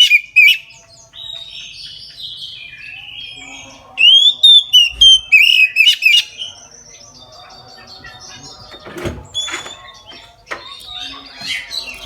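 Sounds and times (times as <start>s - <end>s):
bird singing whistled phrases: 0.0s - 7.0s.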